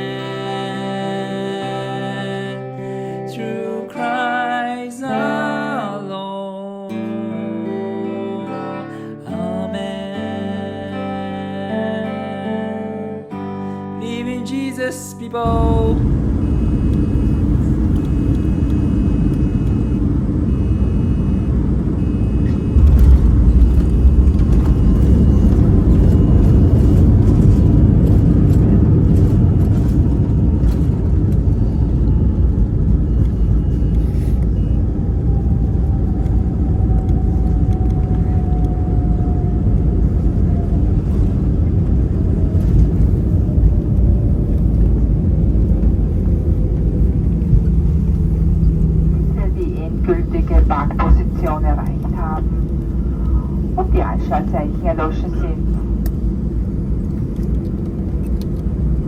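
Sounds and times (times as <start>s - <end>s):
aircraft cabin rumble: 15.4s - 59.0s
falling engine whine: 15.4s - 59.0s.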